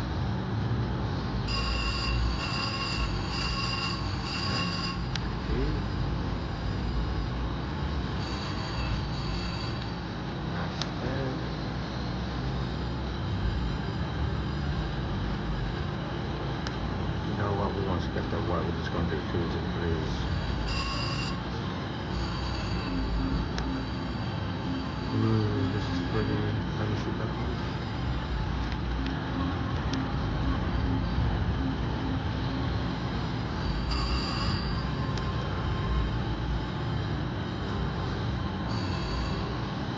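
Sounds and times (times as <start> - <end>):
low electronic slot machine tones: 0.0 - 39.9
high electronic chime: 1.4 - 7.4, 20.4 - 21.5, 30.2 - 36.3.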